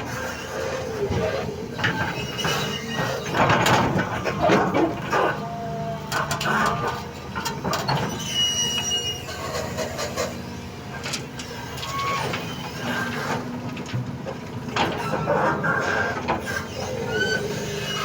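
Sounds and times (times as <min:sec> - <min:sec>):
excavator diesel engine running: 0:00.0 - 0:18.0
knocks and clanks: 0:01.8 - 0:05.0
brief high squeal: 0:08.1 - 0:09.8, 0:11.8 - 0:12.6.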